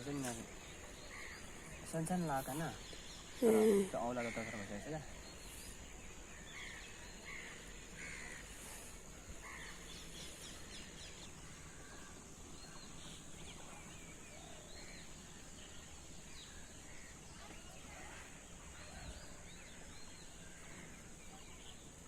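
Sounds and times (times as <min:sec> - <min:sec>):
high-pitched hiss: 0:00.0 - 0:13.5
bird calls: 0:00.0 - 0:22.0.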